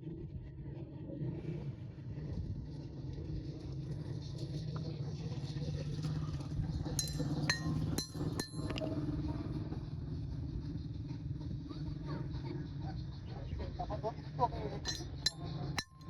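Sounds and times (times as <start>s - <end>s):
metal tools clinking: 7.0s - 8.8s, 14.9s - 16.0s.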